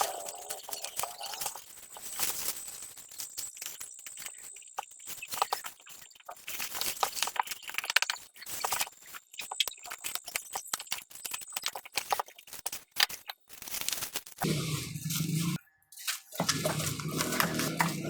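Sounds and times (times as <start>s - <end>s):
packaging rustling and crinkling: 13.5s - 18.0s.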